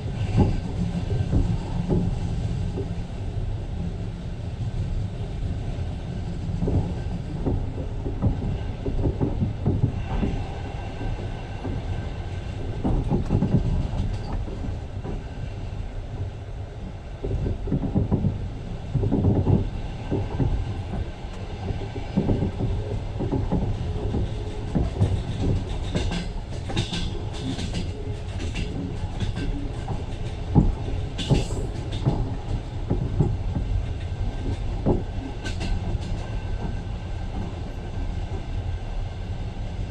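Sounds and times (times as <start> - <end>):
train low rumble: 0.0 - 39.9
wheels clacking over rail joints: 16.2 - 38.5.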